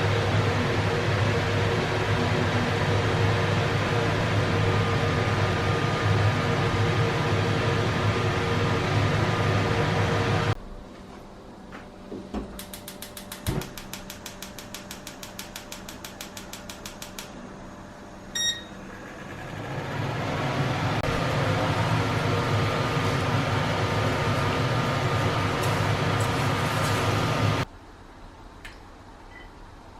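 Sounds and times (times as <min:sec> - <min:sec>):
appliance humming: 0:00.0 - 0:27.7
electronic beep: 0:18.4 - 0:18.8.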